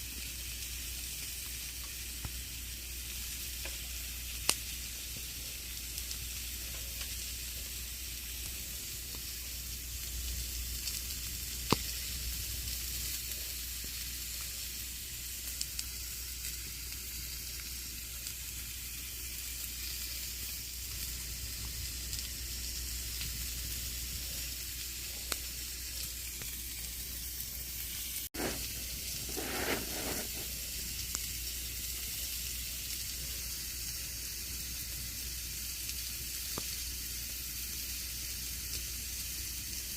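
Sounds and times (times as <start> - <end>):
campfire crackling: 0.1 - 39.9
sharp fire pops: 10.3 - 14.0, 28.4 - 31.3.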